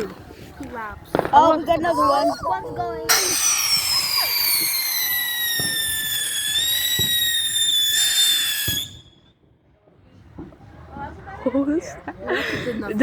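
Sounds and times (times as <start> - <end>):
firework whistling: 3.1 - 9.4.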